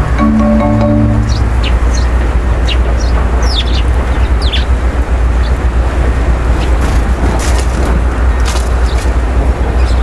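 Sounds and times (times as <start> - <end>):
birds calling: 0.0 - 10.0
steady low rumble: 0.0 - 10.0.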